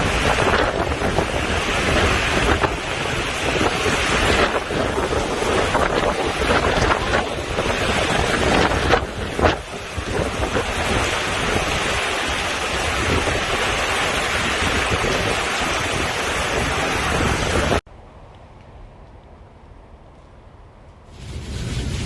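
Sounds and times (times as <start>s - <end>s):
strong wind on microphone: 0.0s - 17.8s, 21.1s - 22.0s.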